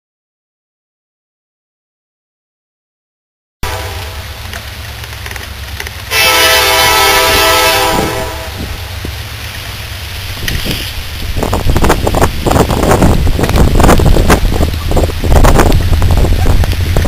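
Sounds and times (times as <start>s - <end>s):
locomotive horn chord: 3.6s - 4.5s, 6.1s - 8.9s
rushing rumbling noise: 3.6s - 17.0s.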